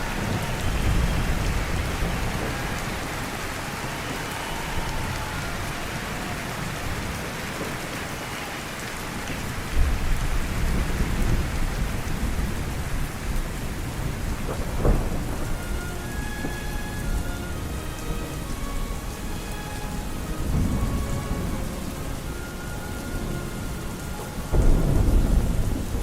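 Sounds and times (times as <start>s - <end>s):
steady rain falling: 0.0s - 26.0s
thunder rumbling: 0.0s - 26.0s.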